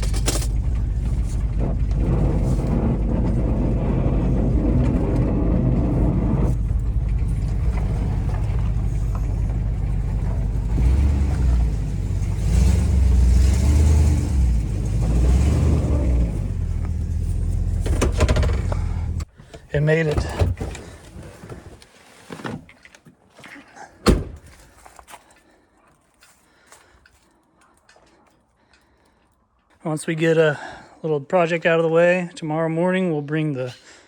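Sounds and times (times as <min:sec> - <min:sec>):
truck engine rumbling: 0:00.0 - 0:21.8.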